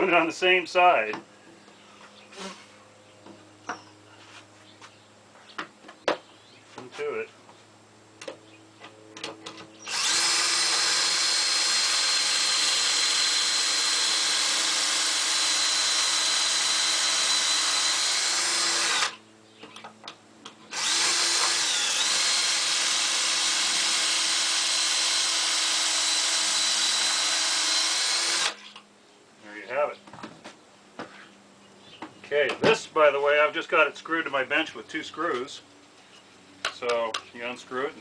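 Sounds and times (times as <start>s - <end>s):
power drill drilling wood: 9.8s - 19.2s, 20.7s - 28.6s.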